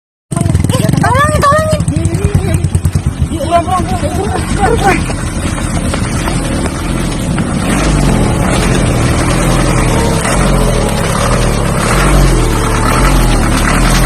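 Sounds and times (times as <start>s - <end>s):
road noise: 0.3s - 14.0s
truck engine driving: 0.3s - 14.0s.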